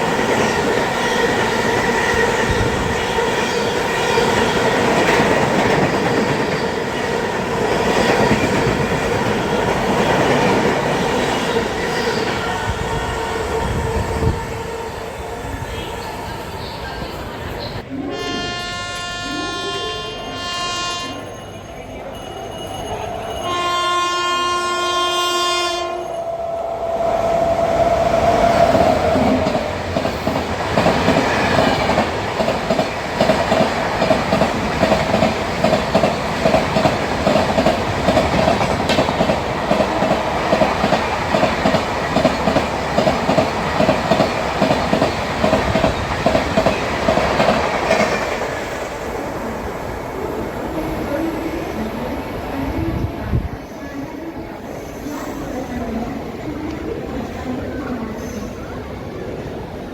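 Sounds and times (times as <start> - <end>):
locomotive horn: 17.9 - 21.3, 23.4 - 26.4.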